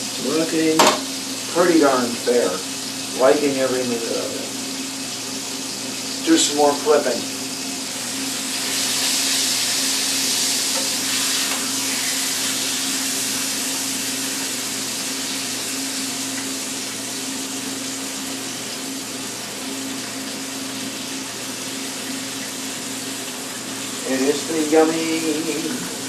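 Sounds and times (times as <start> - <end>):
food sizzling in a frying pan: 0.0 - 26.0.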